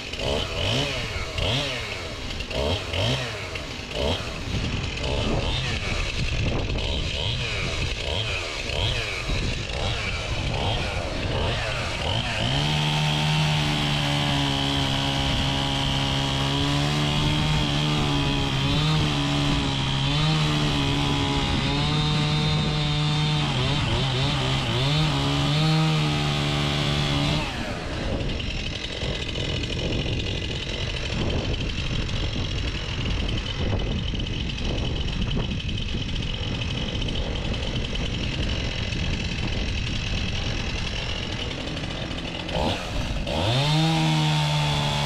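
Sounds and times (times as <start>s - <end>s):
chainsaw cutting wood: 0.0s - 45.0s
engine idling: 26.9s - 43.8s.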